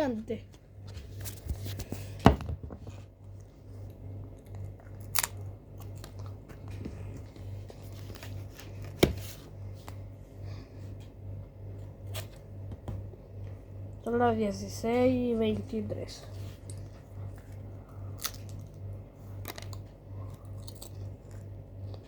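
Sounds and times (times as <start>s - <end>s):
low pulsing hum: 0.0s - 22.0s
potato chips crunching: 4.3s - 8.4s, 16.6s - 22.0s.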